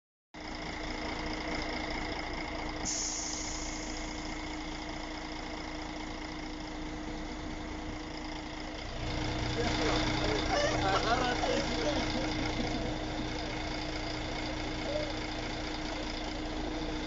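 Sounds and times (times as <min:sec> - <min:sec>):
vehicle engine running: 0:00.4 - 0:17.0
high hiss: 0:02.8 - 0:04.3.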